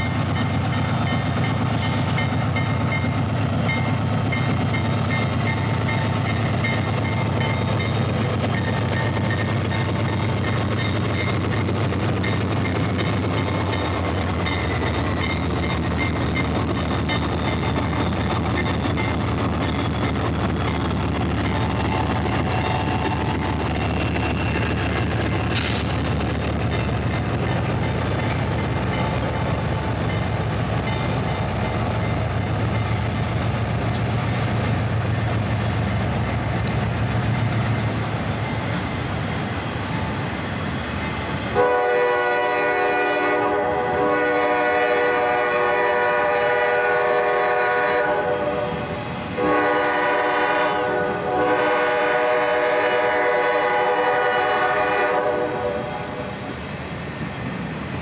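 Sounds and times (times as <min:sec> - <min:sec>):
train cars rolling: 0:00.0 - 0:58.0
locomotive air horn blasts: 0:41.6 - 0:48.8, 0:49.4 - 0:56.0.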